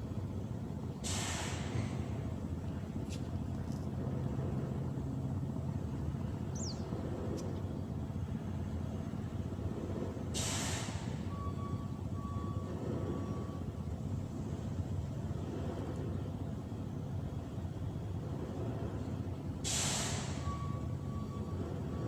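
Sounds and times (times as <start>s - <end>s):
engine droning: 0.0s - 22.0s
short hiss: 1.0s - 2.0s, 10.4s - 11.2s, 19.6s - 20.4s.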